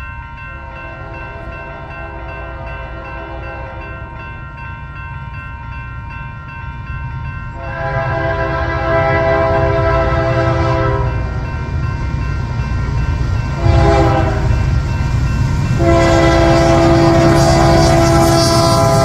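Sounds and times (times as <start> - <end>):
passing train rumble: 0.0 - 19.0
locomotive air horn: 7.6 - 11.2, 13.6 - 14.6, 15.8 - 19.0.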